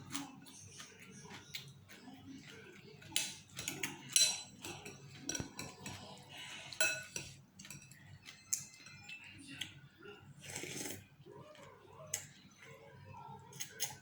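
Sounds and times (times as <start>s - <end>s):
utensils clinking against a bowl: 0.0s - 9.8s.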